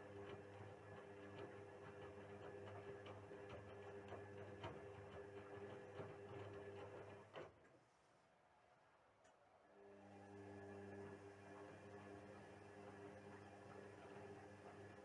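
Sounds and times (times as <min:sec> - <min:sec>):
washing machine motor hum: 0:11.3 - 0:15.0.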